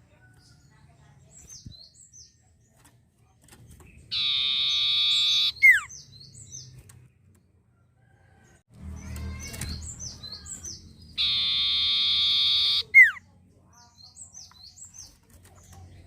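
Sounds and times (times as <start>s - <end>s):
bird singing chirps and trills: 0.2s - 7.6s, 8.4s - 16.0s.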